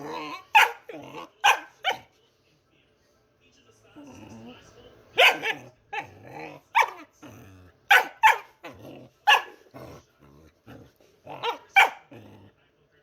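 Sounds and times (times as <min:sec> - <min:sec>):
dog growling: 0:00.0 - 0:01.4, 0:04.0 - 0:04.7, 0:05.4 - 0:12.6
dog barking: 0:00.3 - 0:02.1, 0:05.2 - 0:06.1, 0:06.7 - 0:07.1, 0:07.9 - 0:09.7, 0:11.3 - 0:12.2.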